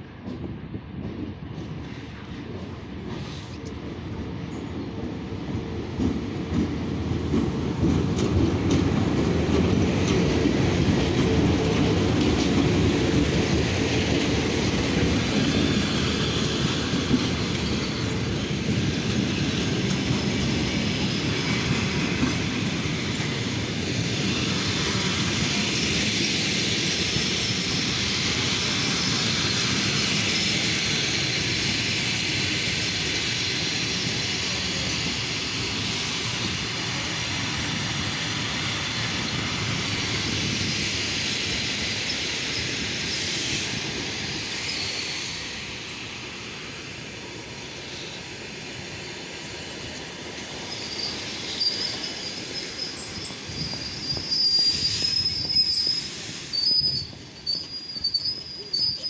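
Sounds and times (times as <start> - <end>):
train wheels rumbling on rails: 0.0 - 59.0
high hiss: 15.1 - 57.8.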